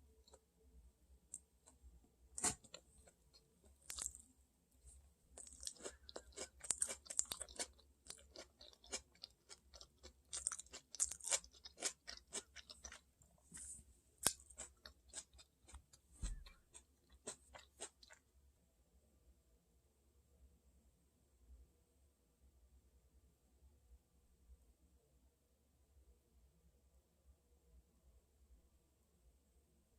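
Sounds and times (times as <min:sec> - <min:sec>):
person chewing crunchy food: 0:02.4 - 0:04.2, 0:05.4 - 0:18.2.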